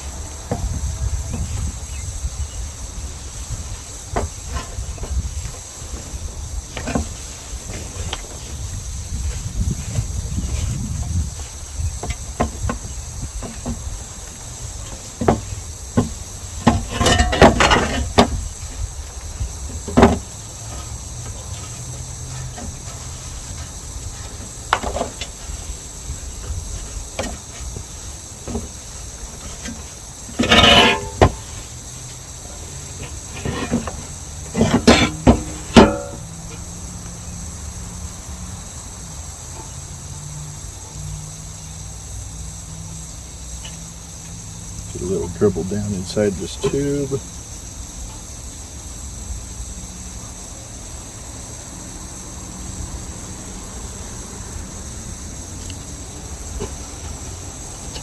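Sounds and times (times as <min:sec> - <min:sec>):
knocks and clatters on sheet metal: 0:15.1 - 0:18.4, 0:19.8 - 0:20.3, 0:34.6 - 0:36.3
metal rattling: 0:29.4 - 0:31.5, 0:33.0 - 0:36.2.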